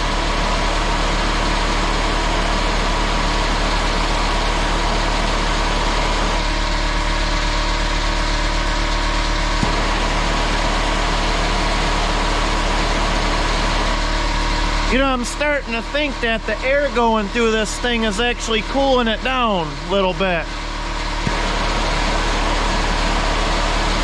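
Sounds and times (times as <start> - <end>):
pneumatic angle grinder whining: 9.6 - 14.0.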